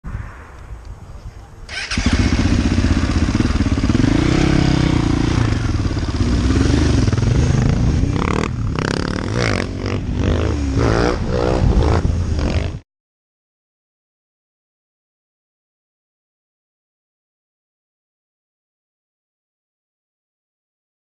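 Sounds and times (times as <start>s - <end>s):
motorcycle engine revving: 1.7s - 12.8s.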